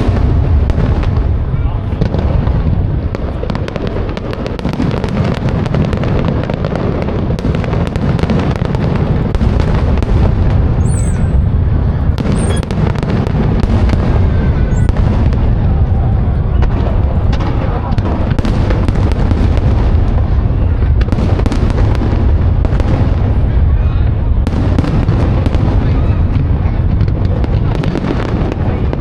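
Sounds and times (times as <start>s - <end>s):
fireworks booming: 0.0s - 29.0s
fireworks crackling: 0.0s - 29.0s.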